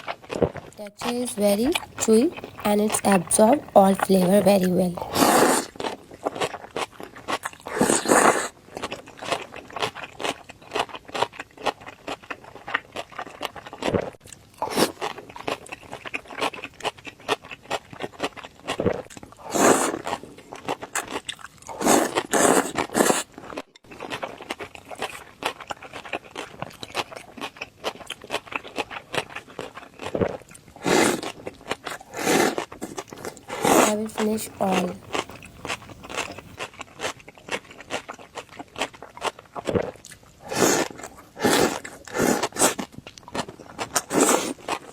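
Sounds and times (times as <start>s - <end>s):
wet chewing and smacking: 0.2s - 44.9s.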